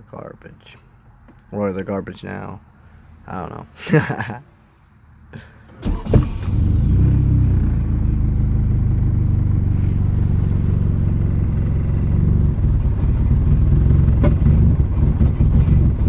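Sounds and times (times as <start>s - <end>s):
car engine rough idle: 5.8s - 16.0s.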